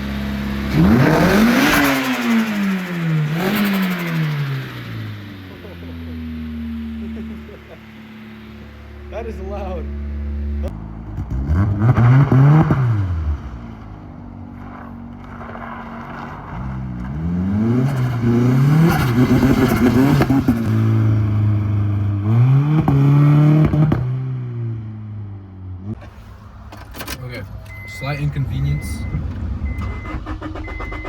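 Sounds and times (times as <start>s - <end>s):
exhaust crackling: 0.0s - 23.0s, 25.8s - 31.0s
car engine revving: 0.0s - 31.0s.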